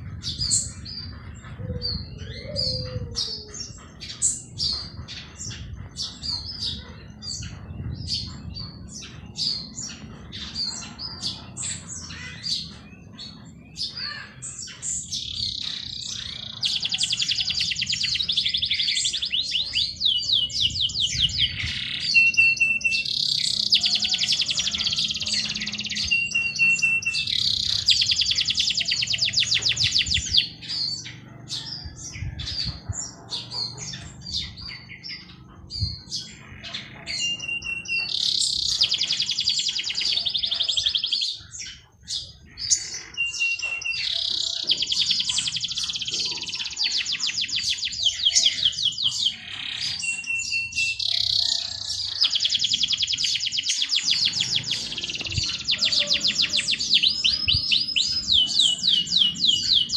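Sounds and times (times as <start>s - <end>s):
songbirds trilling: 0.0s - 59.9s.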